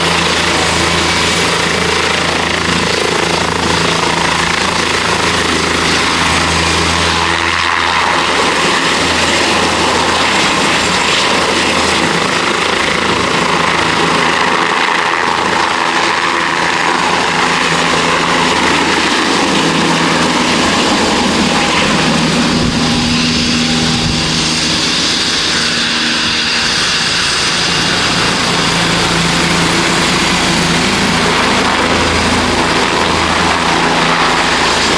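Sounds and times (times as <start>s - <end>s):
helicopter rotor noise: 0.0s - 34.9s
high turbine whine: 0.0s - 34.9s.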